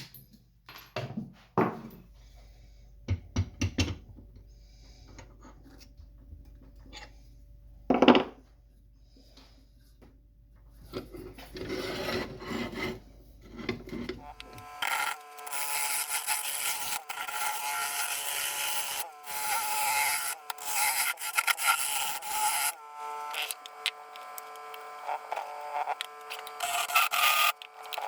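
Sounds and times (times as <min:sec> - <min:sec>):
turning tool cutting wood: 0:11.5 - 0:28.0
wood lathe whine: 0:14.0 - 0:28.0.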